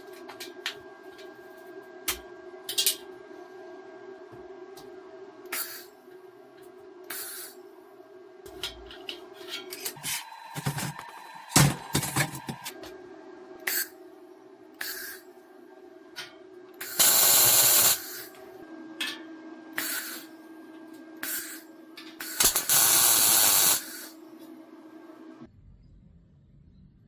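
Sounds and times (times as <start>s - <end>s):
low machine hum: 0.0s - 27.0s
short hissing bursts: 7.1s - 7.6s, 16.8s - 18.3s, 19.8s - 20.3s, 21.2s - 21.6s, 22.2s - 24.2s.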